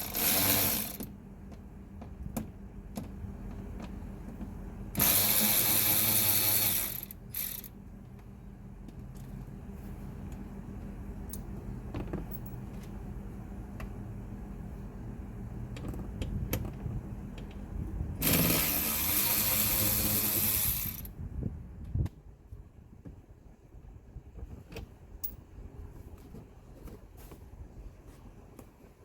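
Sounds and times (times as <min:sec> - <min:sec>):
small mechanical clicks: 0:05.0 - 0:07.7.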